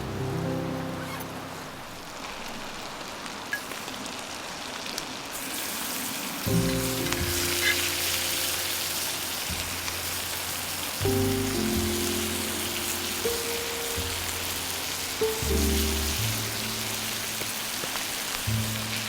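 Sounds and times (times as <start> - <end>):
background music with low notes: 0.0 - 1.8, 6.5 - 19.0
steady hiss: 0.0 - 19.0.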